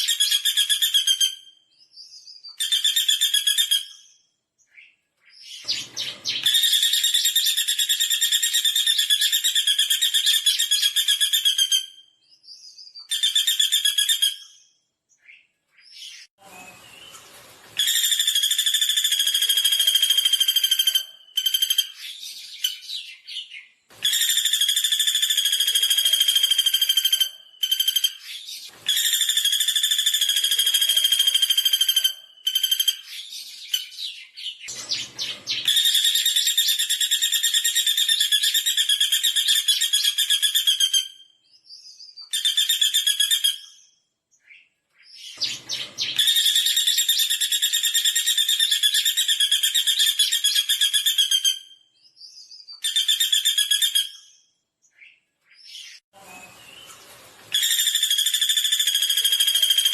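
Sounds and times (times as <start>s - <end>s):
woodpecker rattling trills: 57.6s - 59.9s.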